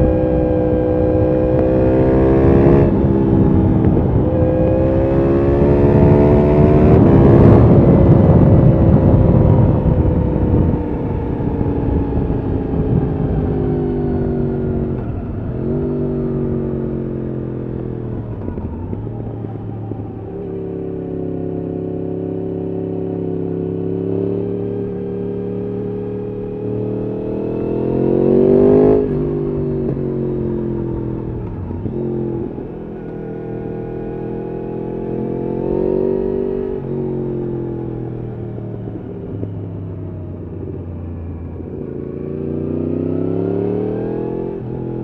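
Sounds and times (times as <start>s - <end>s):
motorcycle engine revving: 0.0s - 45.0s.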